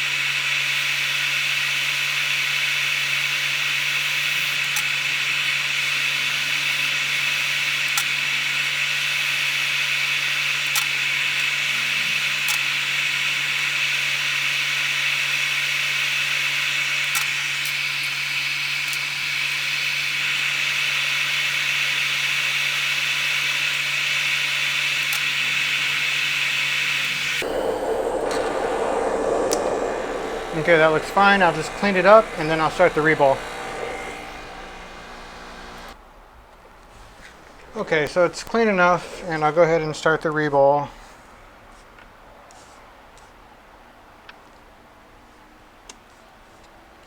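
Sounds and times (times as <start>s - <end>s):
hot air station blowing: 27.0s - 36.0s.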